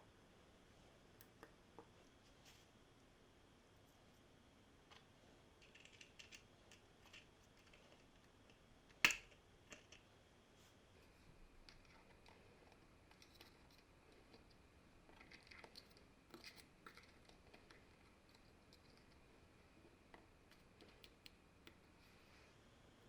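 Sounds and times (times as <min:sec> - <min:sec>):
small parts clicking and scraping: 0:04.9 - 0:10.1, 0:11.6 - 0:19.2.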